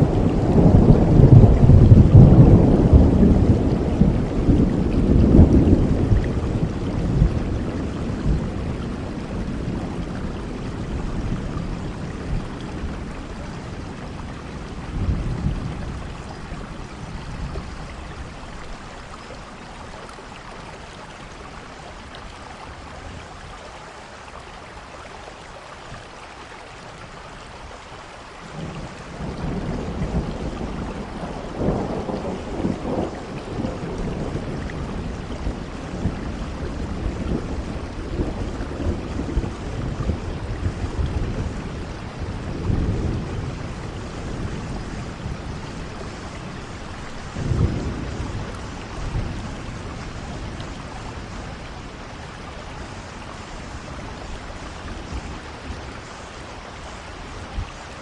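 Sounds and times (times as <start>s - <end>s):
rolling thunder: 0.0s - 19.2s, 28.5s - 56.4s
steady rain: 0.0s - 58.0s.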